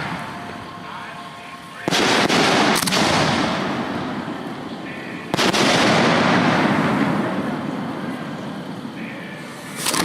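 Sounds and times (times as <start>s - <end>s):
rolling boom: 1.8s - 10.0s
firework bang: 1.9s - 3.9s, 5.3s - 7.7s.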